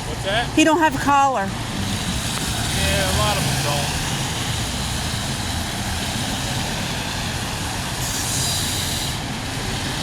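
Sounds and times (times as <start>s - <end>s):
road traffic rumble: 0.0s - 10.0s
passing vehicle hiss: 1.6s - 10.0s.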